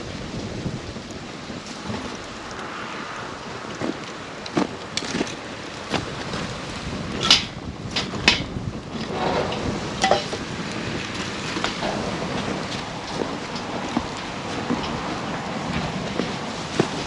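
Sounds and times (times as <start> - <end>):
campfire flame hiss: 0.0 - 7.0
burning wood crackles and pops: 0.0 - 17.0.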